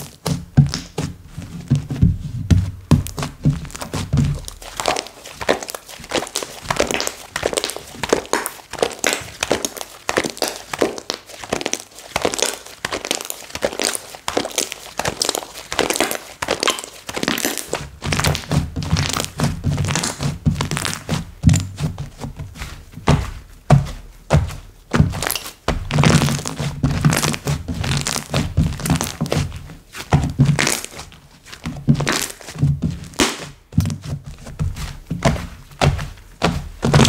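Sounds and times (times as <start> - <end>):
dull thuds: 0.1 - 8.4, 18.0 - 37.0
slime squished by hand: 2.9 - 22.3, 24.3 - 37.0.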